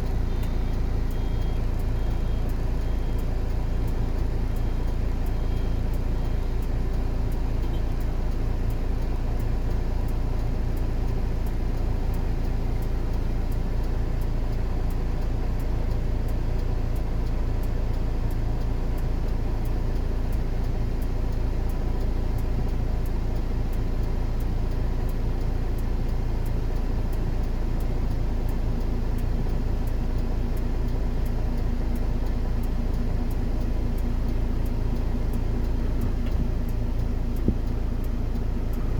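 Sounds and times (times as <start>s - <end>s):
engine running with low hum: 0.0s - 38.9s.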